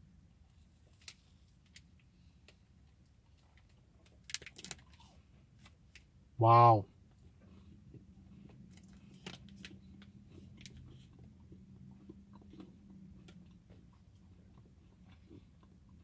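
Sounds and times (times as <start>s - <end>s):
small crunches: 3.3s - 6.0s
faint chewing: 7.0s - 16.0s.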